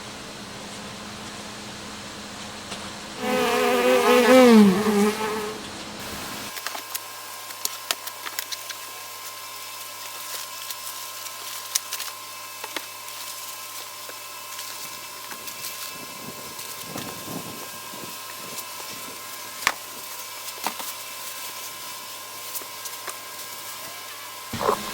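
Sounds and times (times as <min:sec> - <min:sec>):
insect buzzing: 0:03.2 - 0:05.7, 0:24.6 - 0:24.9.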